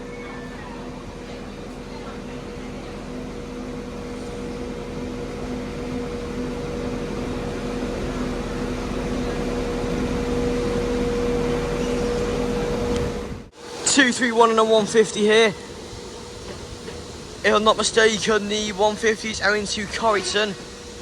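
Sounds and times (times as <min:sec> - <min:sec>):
train engine idling hum: 0:00.0 - 0:21.0.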